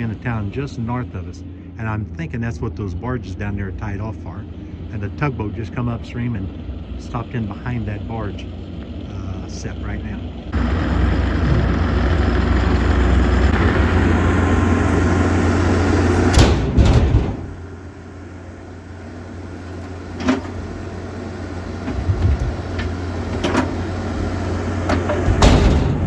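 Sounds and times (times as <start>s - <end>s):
vehicle engine running: 0.0s - 26.0s
door being shut: 16.2s - 17.6s, 21.8s - 23.9s, 24.8s - 26.0s.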